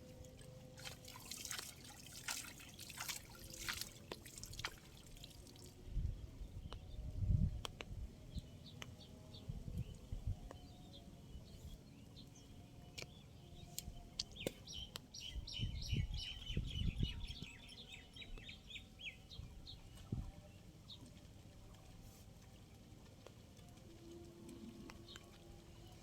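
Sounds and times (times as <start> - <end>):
bird chirping: 10.6 - 19.4.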